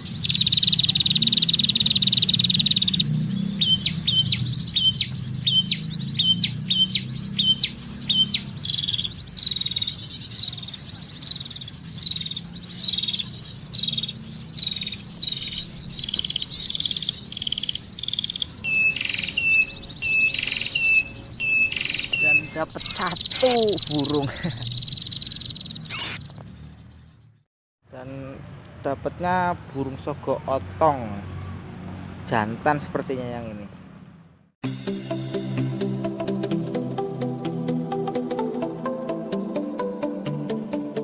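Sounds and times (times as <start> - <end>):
small bird chirping: 0.0 - 27.5.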